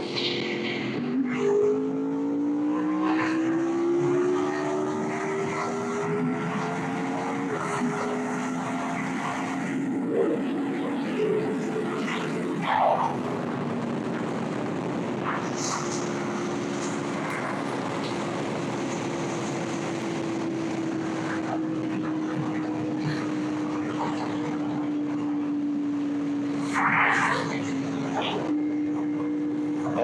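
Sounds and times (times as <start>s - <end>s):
motorcycle engine cruising: 0.0s - 30.0s
wind noise: 3.4s - 25.4s.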